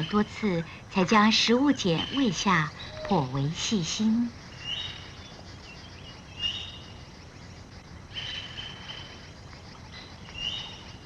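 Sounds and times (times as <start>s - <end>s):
forest background hiss: 0.0s - 11.0s
bird calls: 1.0s - 11.0s.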